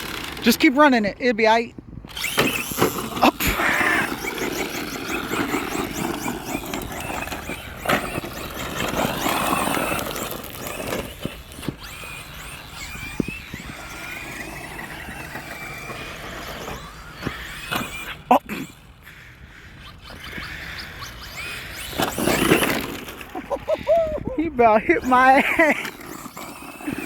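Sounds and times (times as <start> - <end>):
gritty rolling noise: 0.0 - 1.1, 2.1 - 18.3
rc truck motors whining: 0.0 - 27.0.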